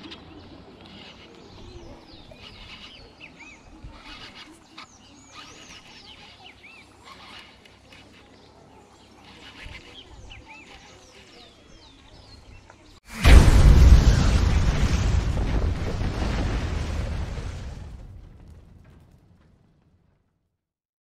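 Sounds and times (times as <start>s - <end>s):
birds chirping: 0.0s - 13.1s.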